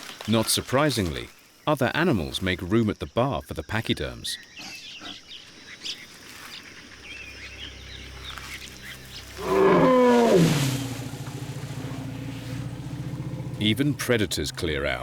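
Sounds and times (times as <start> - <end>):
low pulsing rumble: 9.2 - 14.5
large animal call: 9.4 - 13.6.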